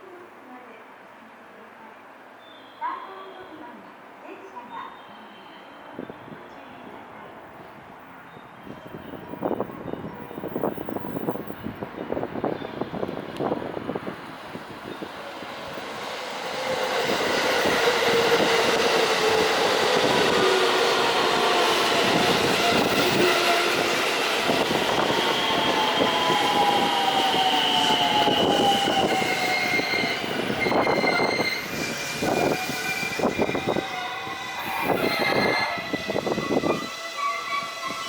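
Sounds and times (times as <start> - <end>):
electric train motors whining: 16.2 - 38.0.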